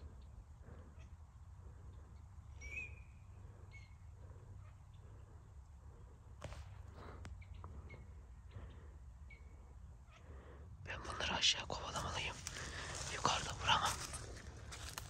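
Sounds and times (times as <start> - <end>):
faint bird chirps: 0.0 - 5.5, 7.3 - 10.3
footstep cracking dry brush: 12.0 - 15.0.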